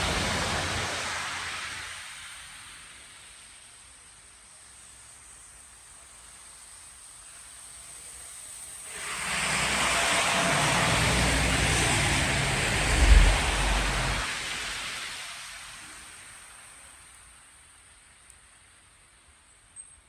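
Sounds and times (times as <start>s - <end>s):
low engine rumble: 9.3s - 14.4s.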